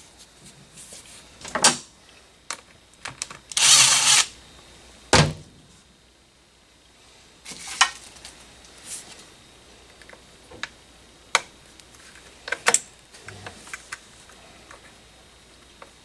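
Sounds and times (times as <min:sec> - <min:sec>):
power tool burst: 0:03.6 - 0:04.4.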